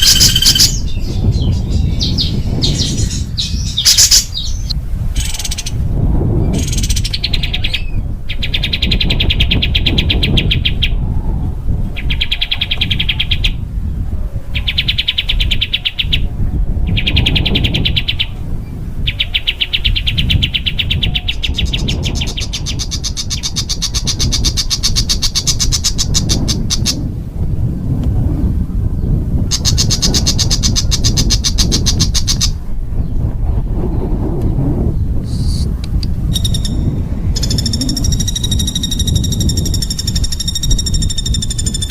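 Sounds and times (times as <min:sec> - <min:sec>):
songbird trilling fast: 0:00.0 - 0:05.8, 0:19.2 - 0:27.0, 0:36.3 - 0:41.9
low rumble: 0:32.6 - 0:41.9.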